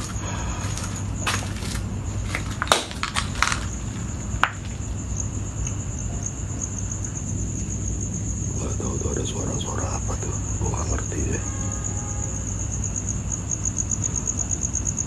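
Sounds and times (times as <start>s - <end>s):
crunching on debris: 0.0s - 5.1s
crickets chirping: 0.0s - 15.0s.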